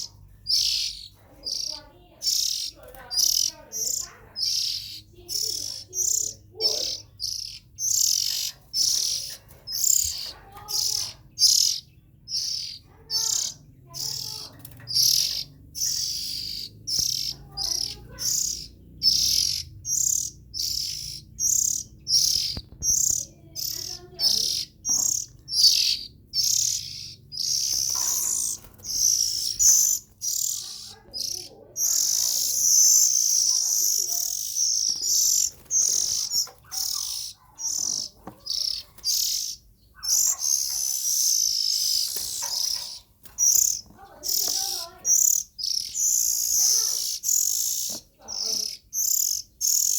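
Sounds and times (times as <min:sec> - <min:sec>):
bird chirping and warbling: 0:00.0 - 0:49.9.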